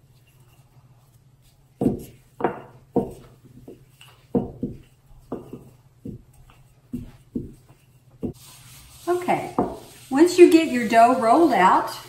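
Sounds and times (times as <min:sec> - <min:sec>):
rolling pin knocking on counter: 0:01.8 - 0:08.4, 0:09.5 - 0:09.9.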